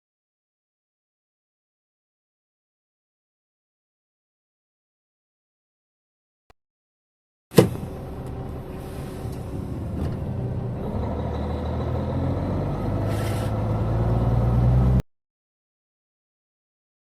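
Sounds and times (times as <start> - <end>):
heavy diesel engine running: 7.6 - 14.8
short hiss: 13.1 - 13.5.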